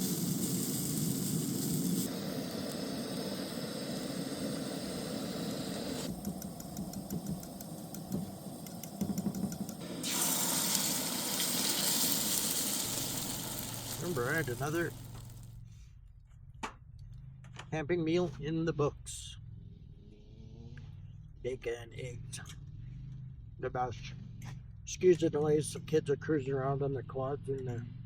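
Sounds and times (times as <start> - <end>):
food sizzling in frying pan: 0.0 - 15.6.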